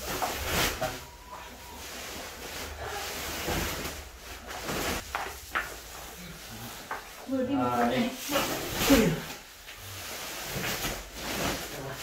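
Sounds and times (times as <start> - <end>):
plastic sacks rustling and scraping: 0.0 - 12.0.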